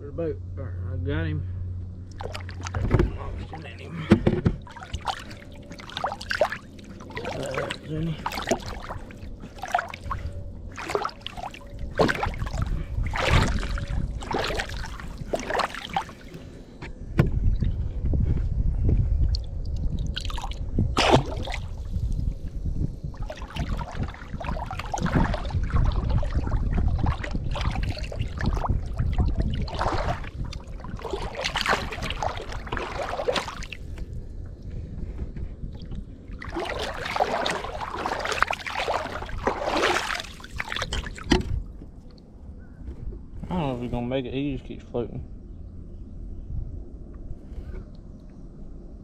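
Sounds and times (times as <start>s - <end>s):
steady low rumble: 0.0s - 49.0s
water splashing beside a boat: 2.0s - 16.6s, 19.3s - 22.3s, 23.0s - 34.2s, 35.6s - 42.2s.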